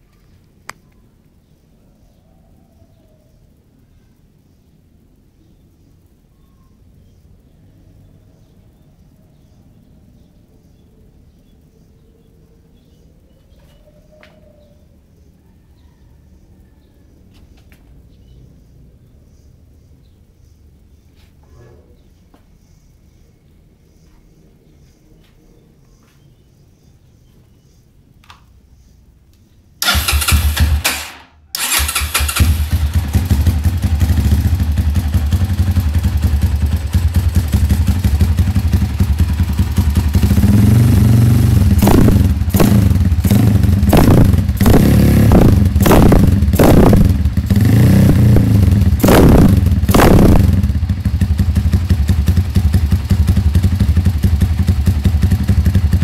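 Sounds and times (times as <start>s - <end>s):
motorcycle engine starting and revving: 29.8s - 56.0s.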